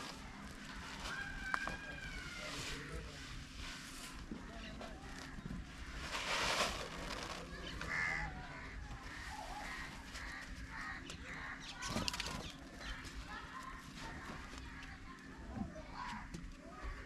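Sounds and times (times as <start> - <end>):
crows cawing: 7.6 - 11.7.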